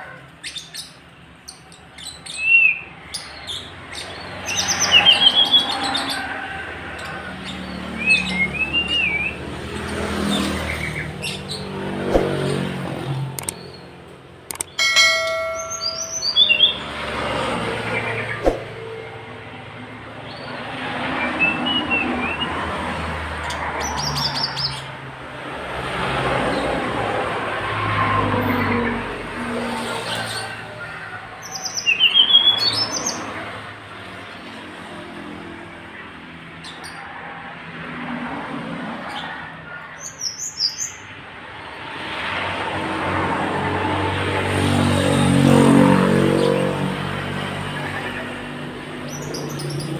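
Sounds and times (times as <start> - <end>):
songbird chirping: 14.5 - 17.0.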